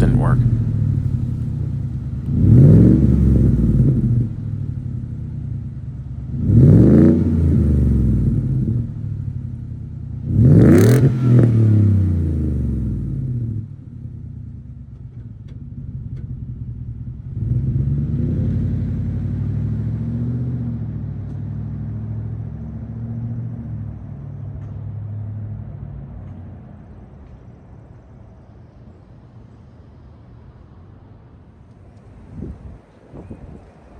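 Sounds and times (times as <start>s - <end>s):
engine revving through exhaust: 0.0s - 5.3s, 6.2s - 9.4s, 10.1s - 13.8s, 17.2s - 23.8s
engine drone: 0.0s - 33.9s.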